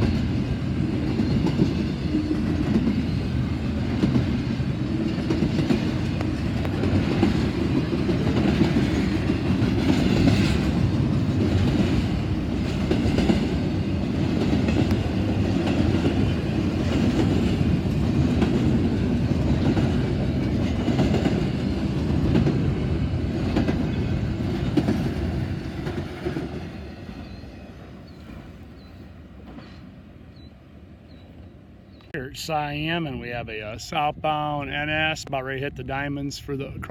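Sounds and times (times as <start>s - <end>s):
freight train wheels clacking: 0.0s - 27.6s.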